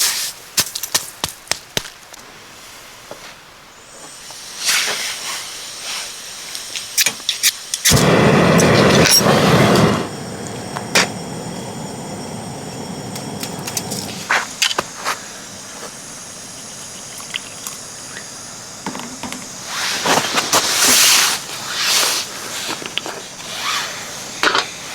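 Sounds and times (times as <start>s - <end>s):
gas burner flame hissing: 3.9s - 24.9s
gas stove igniter clicks: 7.7s - 14.8s.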